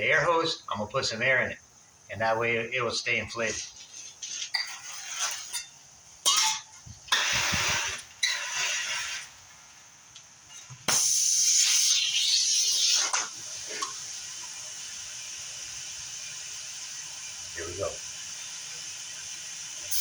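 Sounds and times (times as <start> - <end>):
aerosol can spraying: 7.1 - 8.0.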